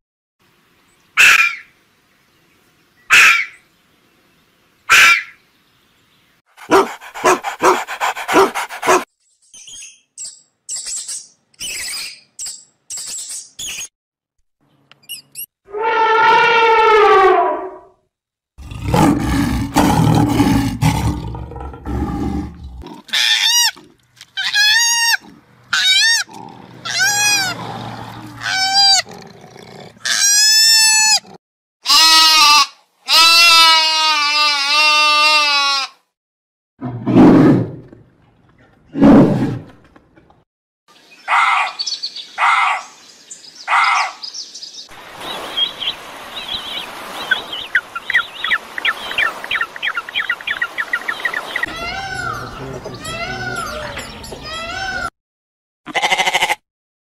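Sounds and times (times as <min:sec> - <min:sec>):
animal calls: 0:24.4 - 0:29.1, 0:47.3 - 0:55.1.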